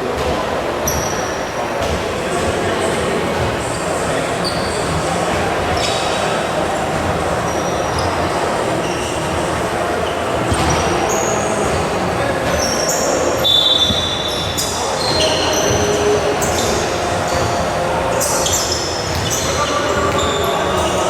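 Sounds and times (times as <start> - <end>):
crowd chatter: 0.0 - 21.0
sneakers squeaking on court: 0.2 - 21.0
basketball bouncing: 19.0 - 20.9.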